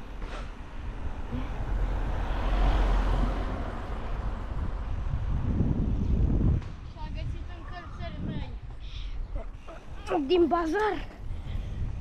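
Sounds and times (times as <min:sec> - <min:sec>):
car passing: 0:00.0 - 0:06.8
wind rumbling on microphone: 0:00.0 - 0:12.0.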